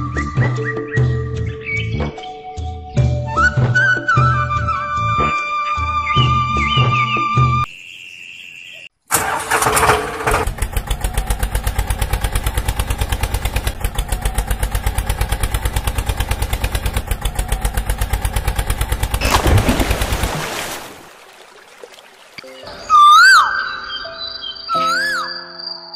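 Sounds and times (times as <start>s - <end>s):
engine starting and idling: 9.1s - 20.3s.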